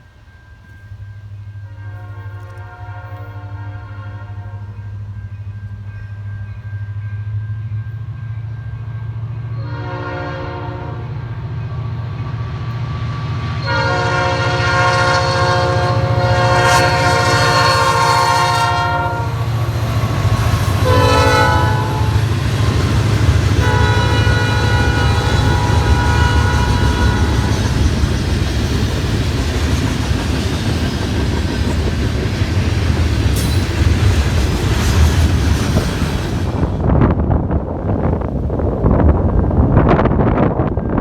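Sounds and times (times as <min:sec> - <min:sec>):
train rumbling: 0:00.0 - 0:41.0
locomotive air horn blasts: 0:01.6 - 0:05.0, 0:09.6 - 0:11.4, 0:13.6 - 0:19.6, 0:20.5 - 0:22.3, 0:23.5 - 0:27.8.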